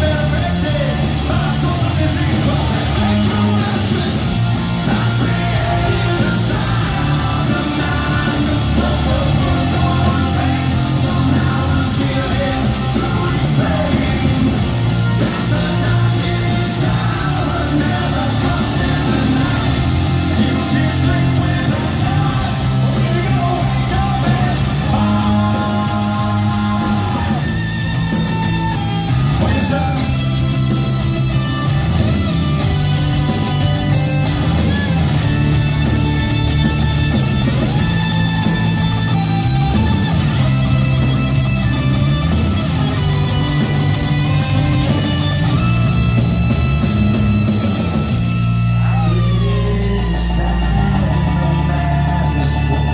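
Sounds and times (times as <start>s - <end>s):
person singing: 0.0s - 27.7s
live hard rock band: 0.0s - 52.9s.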